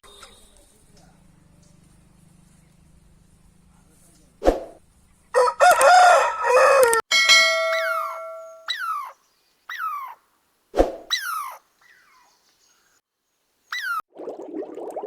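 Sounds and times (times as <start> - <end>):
rooster crowing: 5.3 - 7.0
bell-like chime: 7.1 - 8.7.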